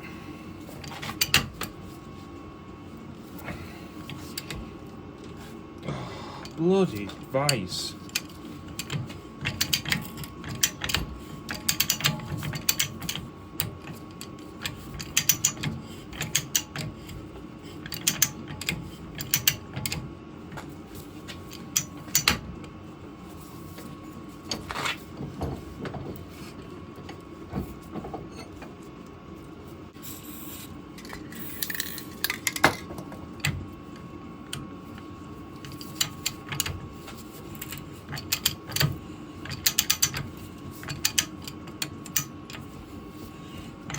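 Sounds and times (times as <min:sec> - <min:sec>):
ratchet die handle clicking: 0:39.5 - 0:40.2.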